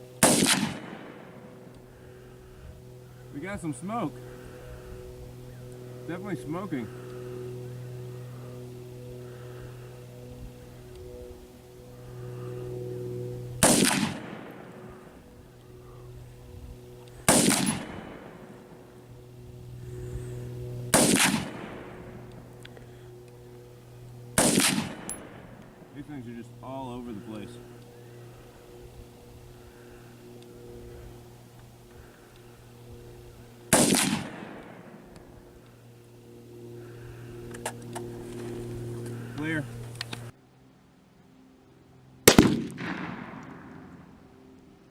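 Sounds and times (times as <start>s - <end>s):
rifle shots with echo: 0.2s - 1.5s, 13.6s - 15.1s, 17.3s - 18.5s, 20.9s - 22.1s, 24.4s - 25.5s, 33.7s - 35.1s, 42.2s - 44.0s.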